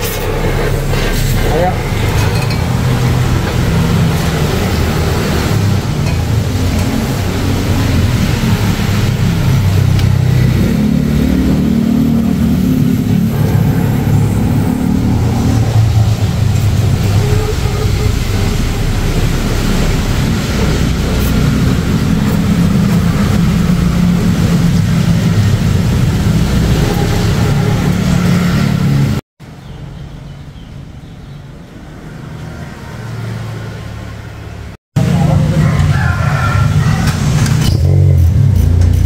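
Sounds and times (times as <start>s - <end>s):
car engine rumbling: 0.0s - 29.2s.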